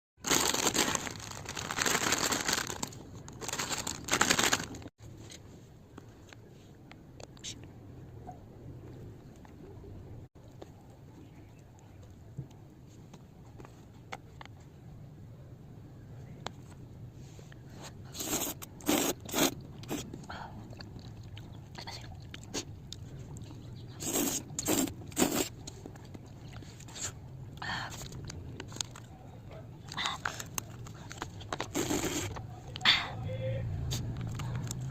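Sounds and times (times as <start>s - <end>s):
person crunching snack food: 0.2s - 4.9s, 24.0s - 25.6s, 31.1s - 32.4s
plastic packaging crinkling and tearing: 0.2s - 4.9s, 30.1s - 32.4s
chewing: 18.2s - 32.8s.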